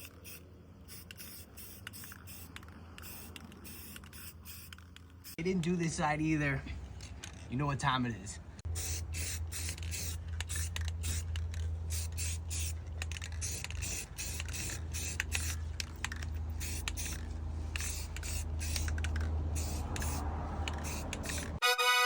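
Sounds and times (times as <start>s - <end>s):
aerosol can spraying: 0.0s - 5.4s, 11.9s - 12.7s, 13.4s - 15.6s, 16.6s - 21.6s.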